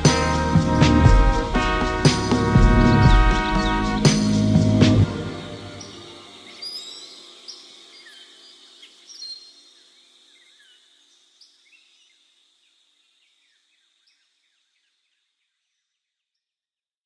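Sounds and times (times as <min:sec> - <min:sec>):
sustained song tone: 0:00.0 - 0:06.6
birds chirping: 0:00.0 - 0:08.2.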